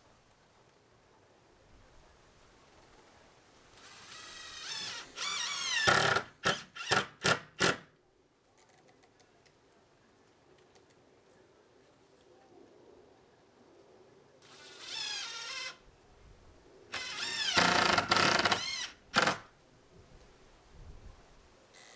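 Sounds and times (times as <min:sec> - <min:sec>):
power drill whining: 0:03.8 - 0:07.8, 0:14.4 - 0:15.8, 0:16.9 - 0:19.5.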